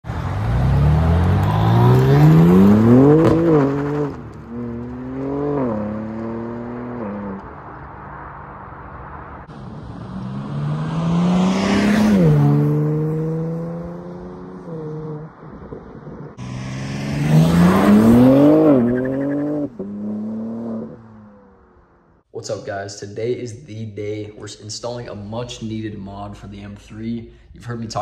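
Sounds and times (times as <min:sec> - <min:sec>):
car exhaust revving: 0:00.0 - 0:07.4, 0:09.4 - 0:15.4, 0:16.0 - 0:22.0.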